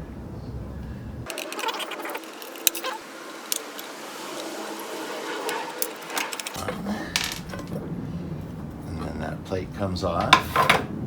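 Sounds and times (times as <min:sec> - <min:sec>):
screwdriver clicks: 0:01.3 - 0:04.8.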